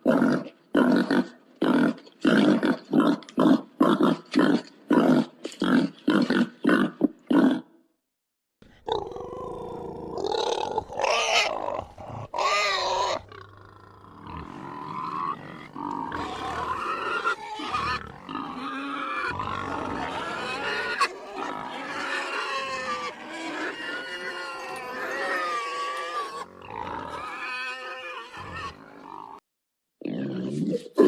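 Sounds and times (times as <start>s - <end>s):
pigs grunting: 8.8s - 29.4s
pigs squealing: 10.2s - 29.4s.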